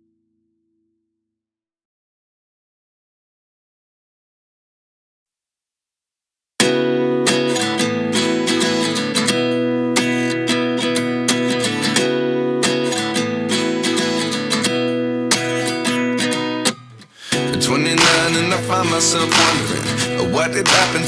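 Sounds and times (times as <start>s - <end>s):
strummed acoustic guitar chords: 6.6s - 21.0s.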